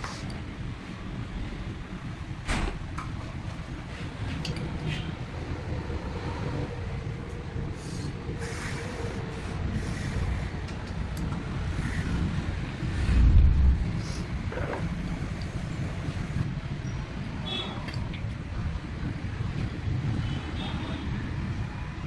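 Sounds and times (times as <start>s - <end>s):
low mechanical rumble: 0.0s - 17.1s.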